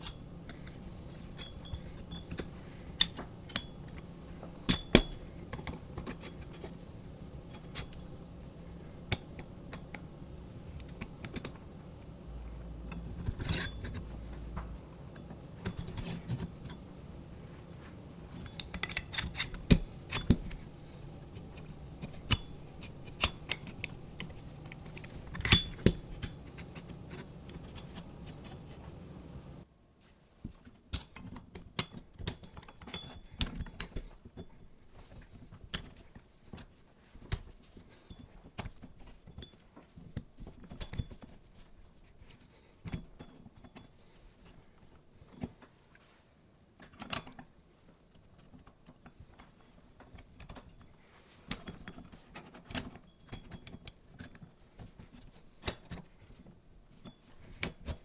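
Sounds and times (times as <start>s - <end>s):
steady background hum: 0.0s - 29.7s
metal parts and tools clinking: 18.2s - 29.6s.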